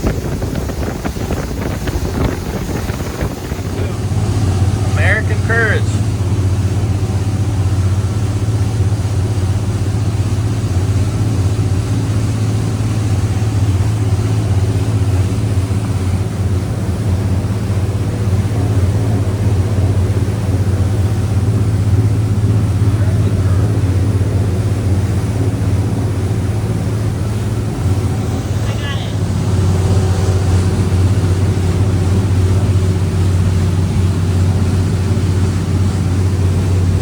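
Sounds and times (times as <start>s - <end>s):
wind rushing: 0.0s - 5.0s
boat diesel engines droning: 0.0s - 37.0s
water rushing: 0.0s - 37.0s.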